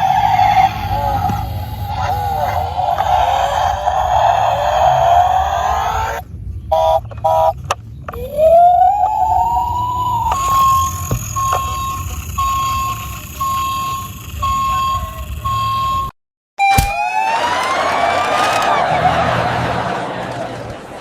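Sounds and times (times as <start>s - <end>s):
electronic siren tone: 0.0s - 17.7s
short electronic beeps: 9.4s - 16.1s.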